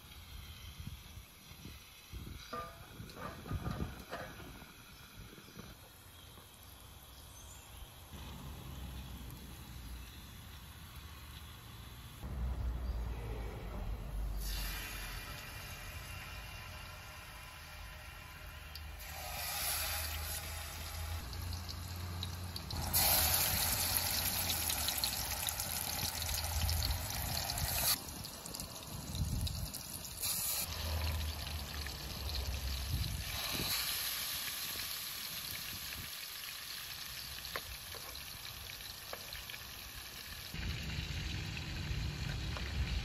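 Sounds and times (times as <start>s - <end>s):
onions sizzling in oil: 4.6s - 12.2s, 14.4s - 43.0s.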